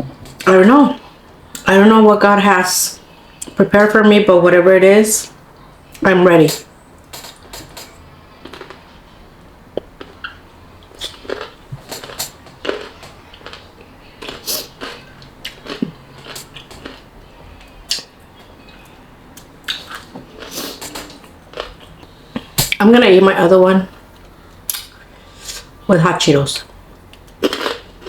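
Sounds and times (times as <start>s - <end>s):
pickle crunching being chewed: 8.4s - 9.0s, 9.8s - 17.1s, 18.8s - 22.6s, 27.0s - 28.0s.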